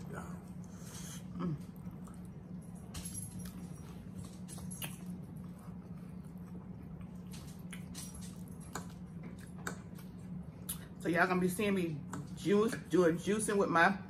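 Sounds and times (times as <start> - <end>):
steady low hum: 0.0 - 14.0
chewing and wet mouth sounds: 0.3 - 2.8, 3.4 - 11.0
small clicks and smacks: 7.0 - 10.9.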